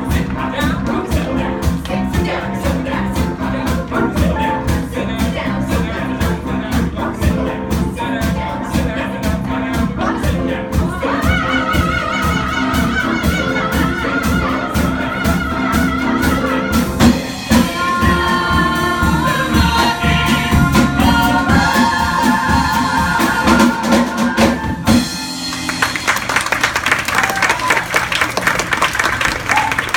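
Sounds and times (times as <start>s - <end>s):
steady drum beat: 0.0s - 26.6s
audience applause: 25.5s - 29.9s.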